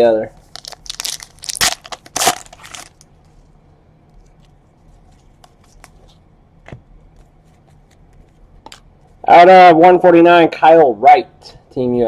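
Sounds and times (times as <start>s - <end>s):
foil wrapper crinkling: 0.4s - 3.1s
cards being handled: 4.1s - 8.9s.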